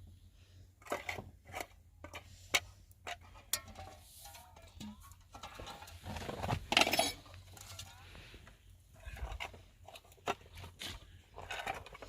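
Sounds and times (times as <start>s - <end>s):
objects clattering: 0.7s - 8.3s, 9.0s - 12.0s
objects clinking and knocking: 0.8s - 8.0s.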